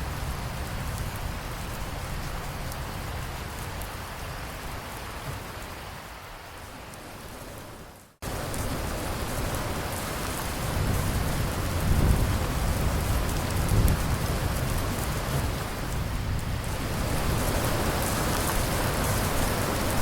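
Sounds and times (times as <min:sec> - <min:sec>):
steady rain falling: 0:00.0 - 0:20.0
thunder rumbling: 0:08.2 - 0:20.0.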